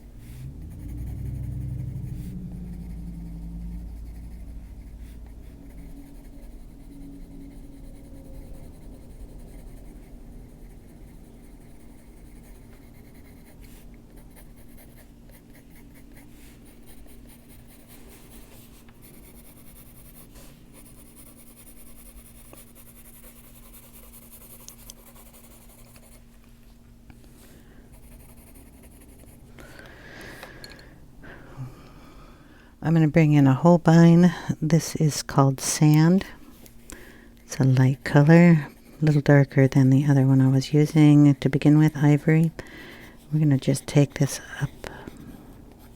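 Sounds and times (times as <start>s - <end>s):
low steady hum: 0.0s - 45.9s
pencil scratching on paper: 3.8s - 26.3s, 27.9s - 29.4s.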